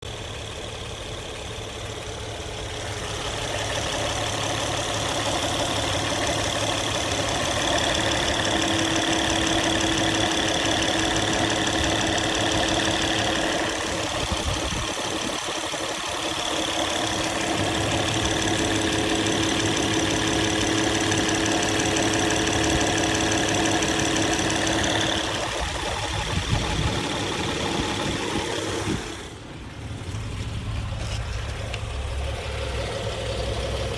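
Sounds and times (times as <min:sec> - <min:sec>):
engine running: 0:00.0 - 0:33.9.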